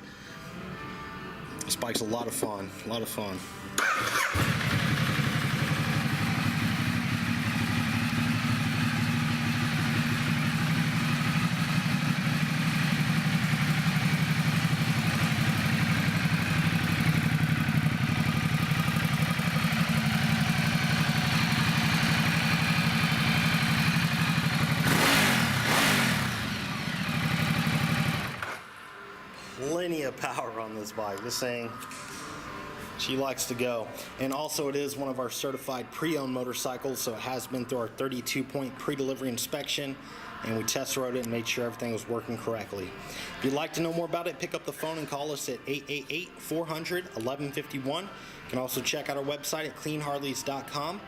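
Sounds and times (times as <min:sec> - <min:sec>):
motorcycle engine idling: 0:03.8 - 0:28.5
motorcycle engine revving: 0:03.8 - 0:28.6.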